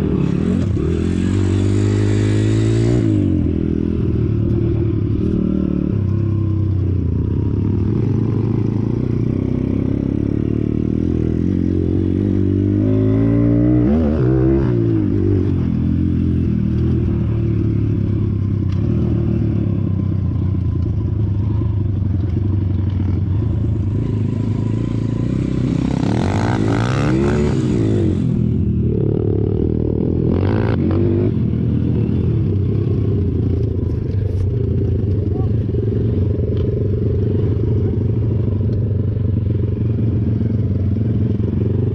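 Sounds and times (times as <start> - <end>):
small motorcycle engine running: 15.8 - 41.9.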